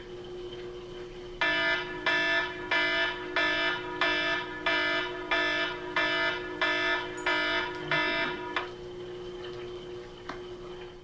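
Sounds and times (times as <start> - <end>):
low hum: 0.0 - 10.4
electronic alarm beeping: 1.4 - 8.7.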